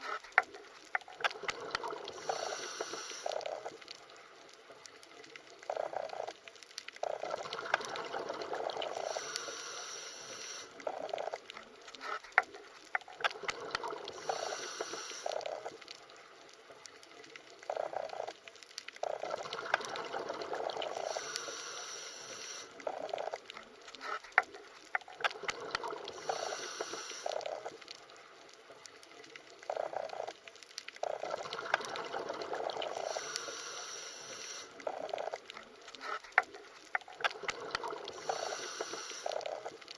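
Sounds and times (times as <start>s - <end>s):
underwater bubbling wash: 7.0s - 9.6s, 13.0s - 15.8s, 19.0s - 21.6s, 25.0s - 27.9s, 31.0s - 36.0s, 36.9s - 39.9s.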